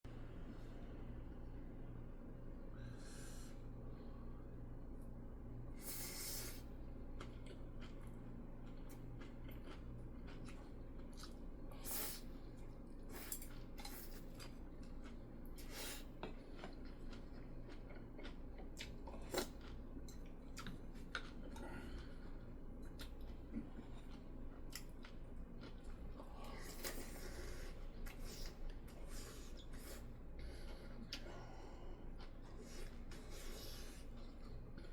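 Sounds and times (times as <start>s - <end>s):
low steady hum: 0.0s - 34.9s
chewing: 7.2s - 34.9s.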